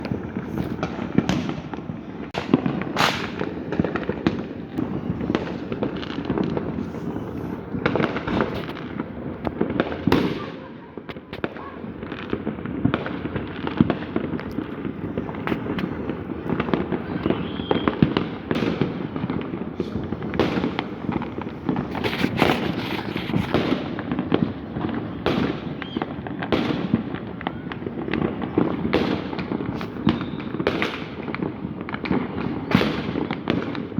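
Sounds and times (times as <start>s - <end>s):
fireworks and firecrackers banging: 0.0s - 33.9s.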